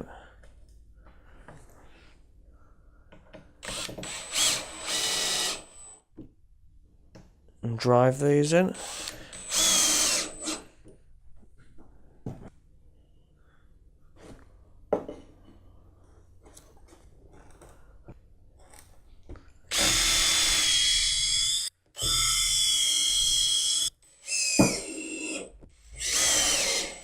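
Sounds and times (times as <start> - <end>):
power drill whining: 3.6 - 6.0, 8.8 - 10.7, 19.7 - 27.0.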